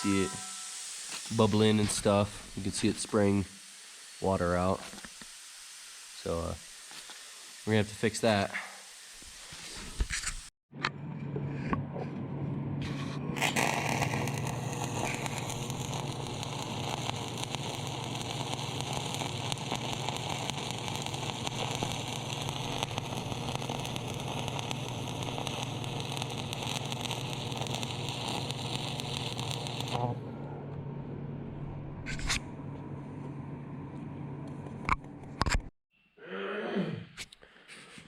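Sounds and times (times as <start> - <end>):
welder crackling sputter: 0.0 - 8.5, 13.4 - 30.2.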